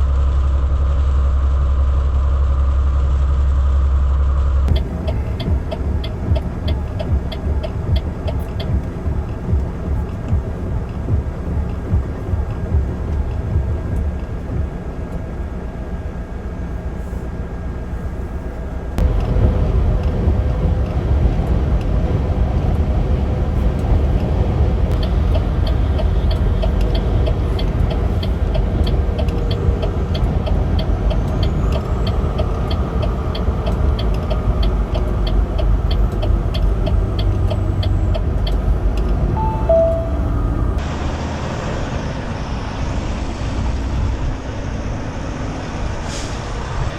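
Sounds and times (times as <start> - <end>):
truck engine and road rumble: 0.0 - 46.9
light even ticking: 4.7 - 15.4, 23.6 - 40.8.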